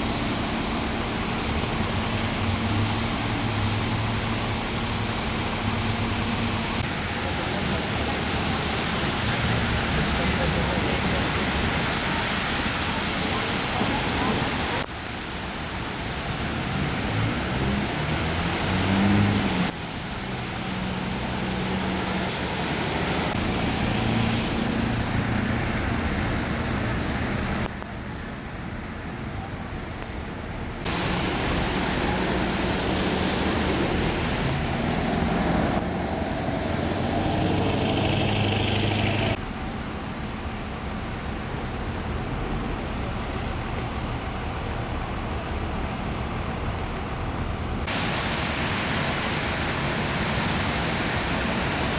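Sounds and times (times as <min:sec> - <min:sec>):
steady rushing noise: 0:43.6 - 0:51.9.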